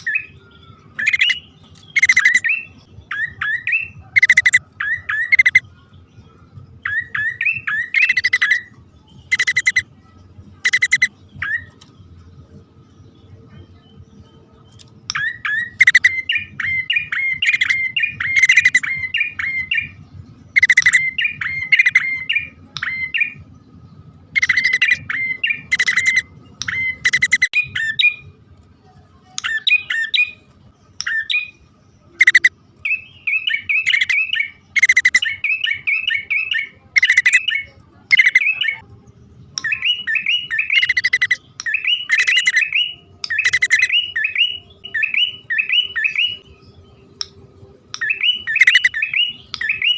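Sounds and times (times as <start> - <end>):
bird chattering calls: 1.0 - 5.6, 7.0 - 8.7, 9.3 - 9.9, 10.6 - 11.8, 15.1 - 19.9, 20.5 - 23.2, 24.3 - 28.1, 32.1 - 32.6, 33.2 - 38.8, 39.6 - 46.4, 48.0 - 49.9.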